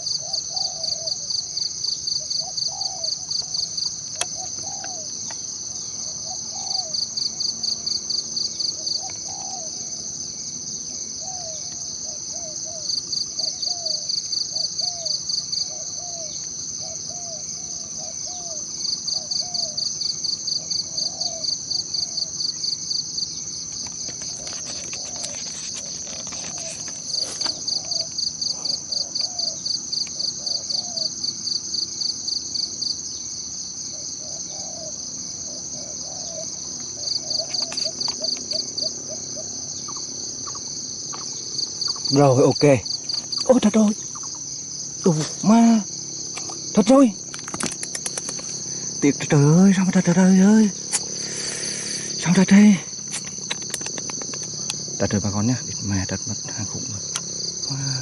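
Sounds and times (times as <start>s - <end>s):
insects buzzing: 0.0s - 58.0s
rapid pulsed chirping: 0.0s - 58.0s
faint clicks: 47.3s - 48.6s.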